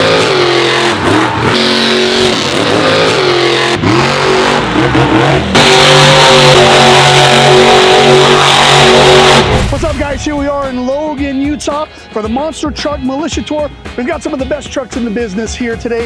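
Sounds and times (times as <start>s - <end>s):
steady high-revving engine: 0.0s - 9.6s
truck engines revving: 0.0s - 12.2s.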